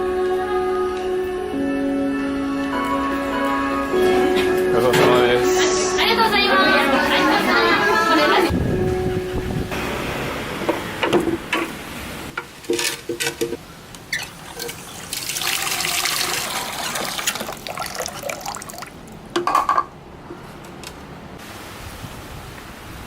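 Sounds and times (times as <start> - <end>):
liquid running: 10.4 - 19.3
clinks and knocks: 12.4 - 13.6, 19.4 - 20.4.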